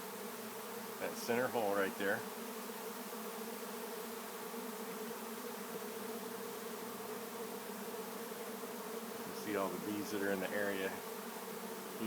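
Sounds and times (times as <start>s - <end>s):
bee swarm humming: 0.0s - 12.0s.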